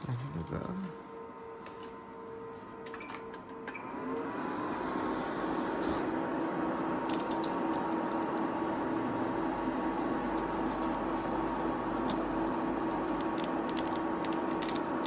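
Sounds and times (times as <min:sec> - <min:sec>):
cutting plotter motor whir: 0:03.9 - 0:15.0.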